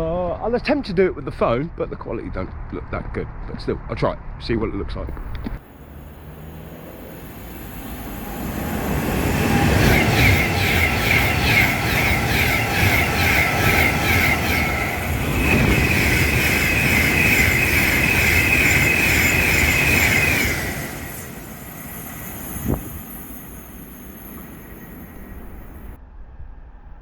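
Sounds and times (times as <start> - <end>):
wheels squealing: 5.1 - 26.0
train rumbling past: 5.1 - 27.0.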